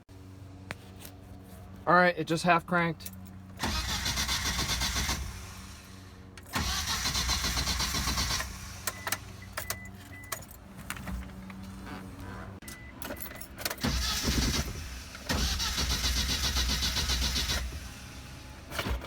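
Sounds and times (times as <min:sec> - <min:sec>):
starter motor cranking: 0:03.6 - 0:05.8, 0:06.5 - 0:09.3, 0:13.8 - 0:18.1.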